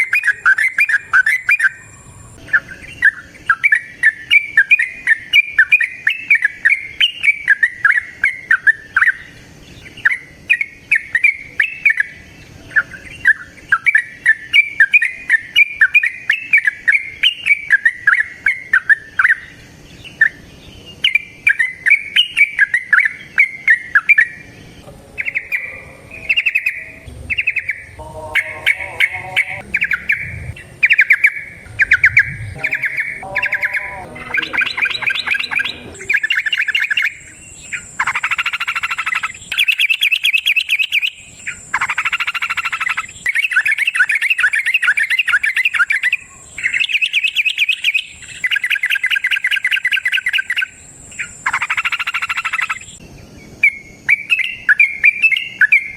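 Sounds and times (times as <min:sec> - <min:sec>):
bird warbling and chattering: 0:21.0 - 0:41.1.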